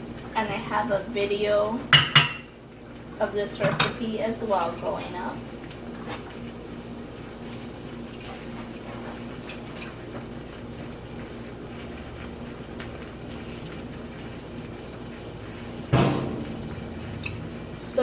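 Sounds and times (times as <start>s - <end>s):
low hum: 15.6s - 18.0s
loud knock: 15.9s - 17.7s.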